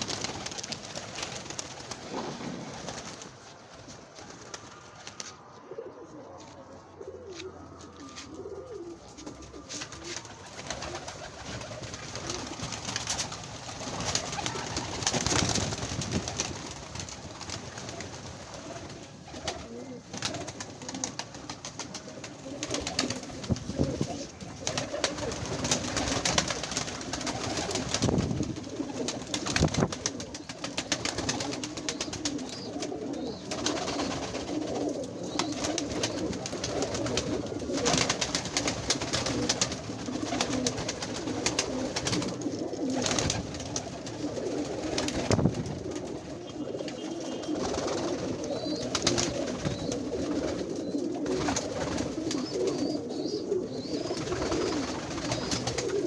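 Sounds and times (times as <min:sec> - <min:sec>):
pigeons cooing: 0:00.0 - 0:56.0.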